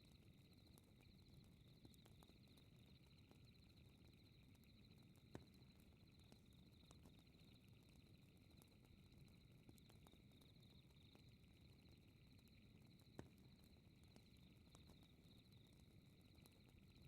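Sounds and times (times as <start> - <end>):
crickets chirping: 9.8 - 17.0.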